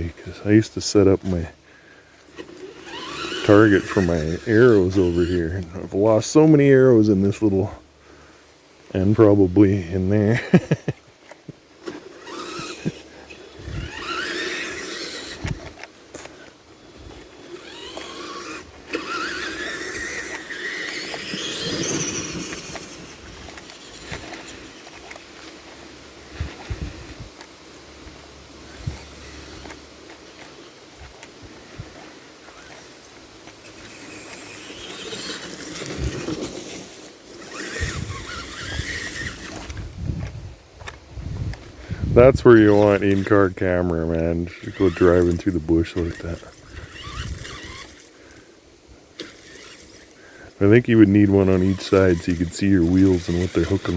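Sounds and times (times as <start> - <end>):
electric motor and gearbox whining: 0.0 - 7.4, 11.8 - 48.5, 49.1 - 53.9
twigs rustling and crackling: 10.9 - 53.9.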